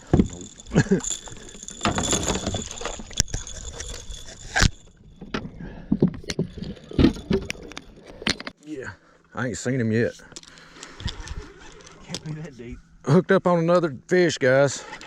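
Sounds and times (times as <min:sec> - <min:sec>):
fishing gear clicking and rattling: 0:00.0 - 0:08.6, 0:10.1 - 0:12.5.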